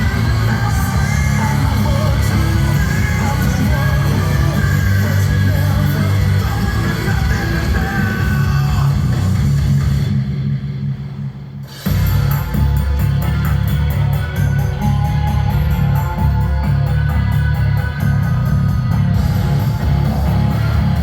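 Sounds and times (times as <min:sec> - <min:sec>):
shouted vocal: 0:00.0 - 0:09.4
distorted electric guitar: 0:00.0 - 0:21.0
heavy bass: 0:00.0 - 0:21.0.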